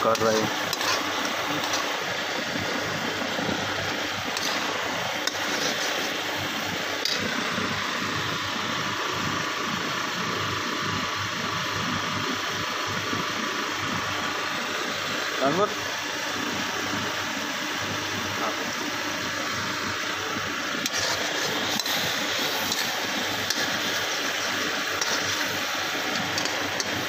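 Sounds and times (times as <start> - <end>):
food sizzling in a wok: 0.1 - 10.0, 20.8 - 27.0.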